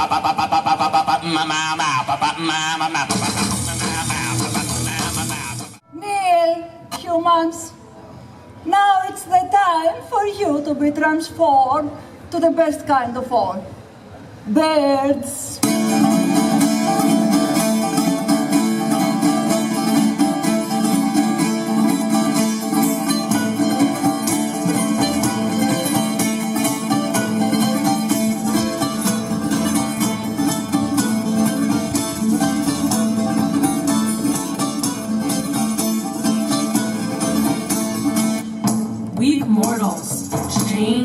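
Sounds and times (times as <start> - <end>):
plucked string music: 15.6 - 41.0.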